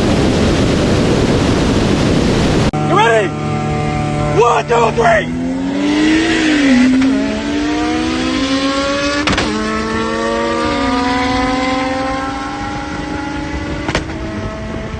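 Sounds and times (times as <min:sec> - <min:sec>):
car engine at full throttle: 0:00.0 - 0:14.9
sharp crack: 0:09.2 - 0:09.6.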